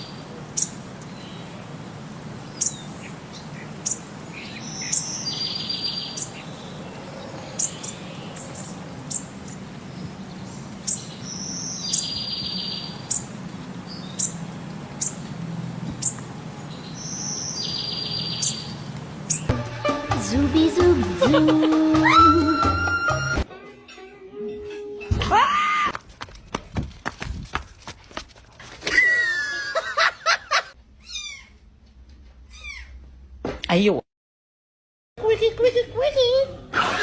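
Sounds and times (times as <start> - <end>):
high bird chirps: 16.8 - 19.5.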